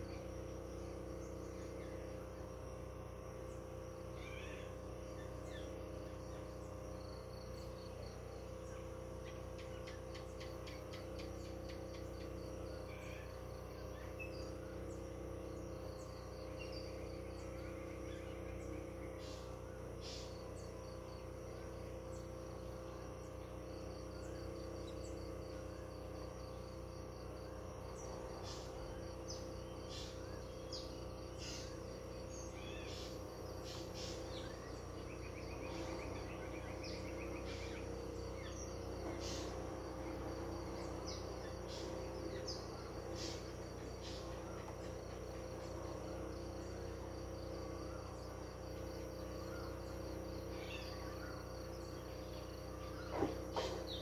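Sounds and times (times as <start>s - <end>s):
insects trilling: 0.0s - 54.0s
bird chirps: 3.4s - 54.0s.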